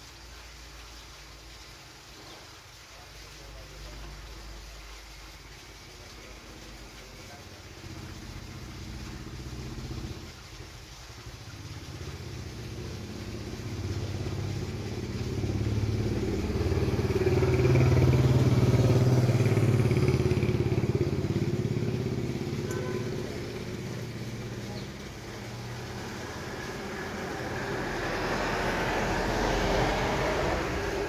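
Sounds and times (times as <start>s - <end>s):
vehicle passing close by: 6.6s - 10.4s, 11.3s - 31.0s.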